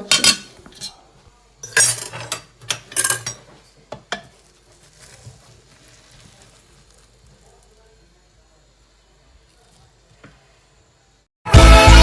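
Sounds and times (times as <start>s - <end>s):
utensils clattering on dishes: 0.0s - 1.0s, 1.6s - 3.6s.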